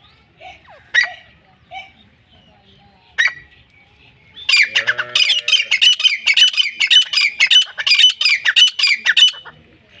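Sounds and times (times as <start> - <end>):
bird calling harsh repeated notes: 4.4 - 9.5.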